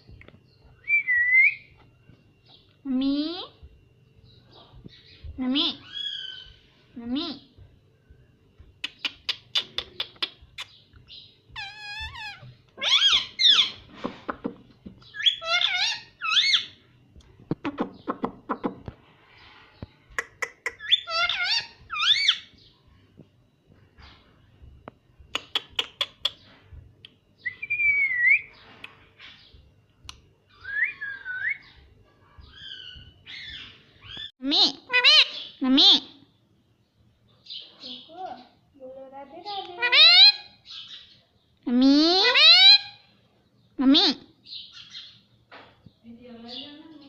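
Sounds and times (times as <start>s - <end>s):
parrot chattering calls: 11.6s - 13.8s, 15.1s - 16.8s, 20.2s - 22.5s, 32.6s - 36.2s, 39.7s - 40.8s, 42.0s - 43.1s
parrot gliding whistle: 27.5s - 28.5s, 30.6s - 31.6s.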